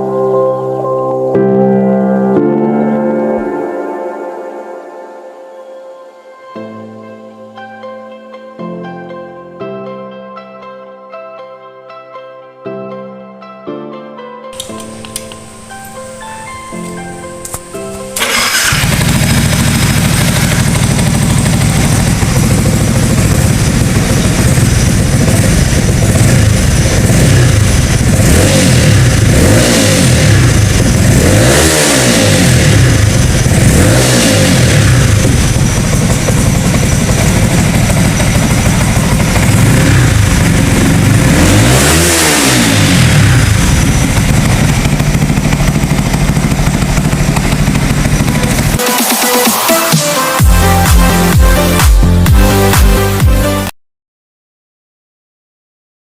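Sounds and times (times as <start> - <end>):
motorcycle engine revving: 17.4 - 53.5.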